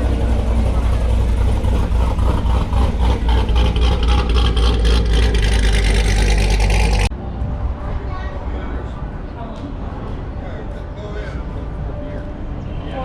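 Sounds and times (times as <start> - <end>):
car engine rumbling: 0.0 - 10.4.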